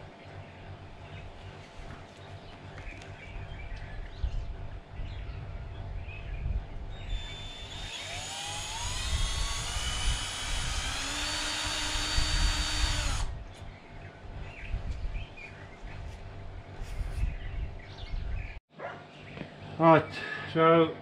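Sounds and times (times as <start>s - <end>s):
power drill whining: 7.0s - 13.4s.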